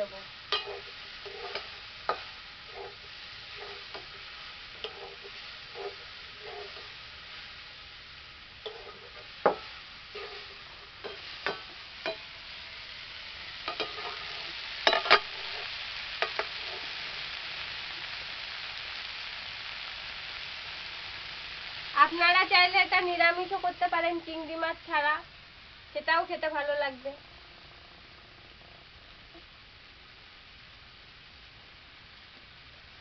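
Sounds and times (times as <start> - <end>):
vegetables sizzling in a pan: 0.0 - 33.0
metal spatula scraping a pan: 0.5 - 7.4, 8.6 - 12.5, 13.6 - 17.1.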